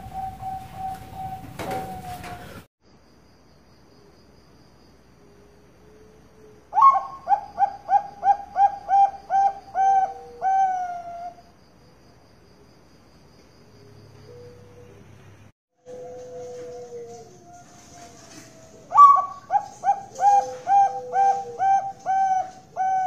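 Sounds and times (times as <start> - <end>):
dove cooing: 0.0 - 2.6, 6.0 - 11.4, 15.9 - 23.0.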